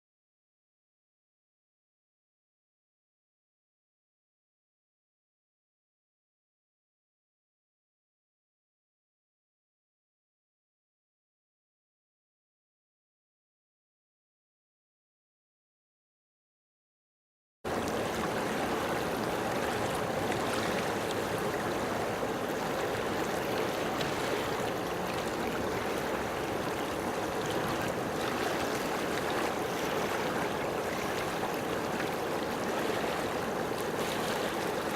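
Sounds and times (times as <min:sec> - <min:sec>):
running water rushing: 0:17.7 - 0:34.9.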